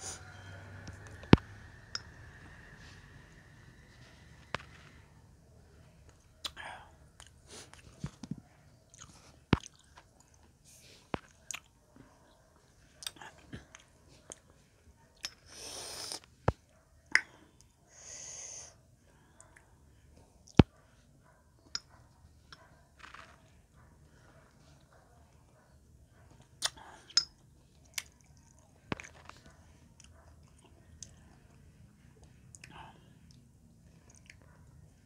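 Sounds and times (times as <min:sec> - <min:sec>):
chewing and wet mouth smacks: 0:08.9 - 0:10.5, 0:11.2 - 0:11.7, 0:26.3 - 0:29.4, 0:32.2 - 0:34.5.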